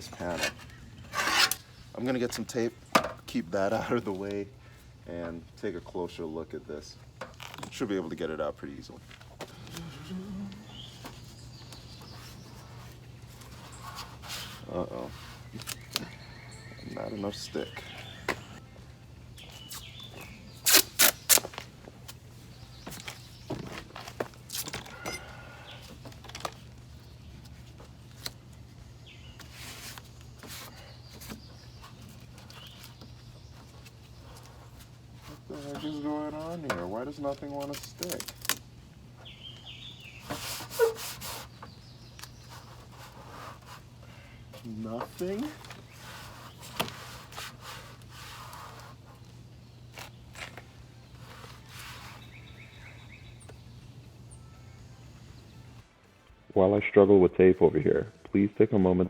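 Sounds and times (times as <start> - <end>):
tape rustles and squeaks: 0.0 - 2.6, 7.2 - 18.6, 19.4 - 53.7
steady low hum: 0.0 - 37.2
faint bird chirps: 9.6 - 18.8
adhesive tape pulled and pressed: 20.6 - 21.6.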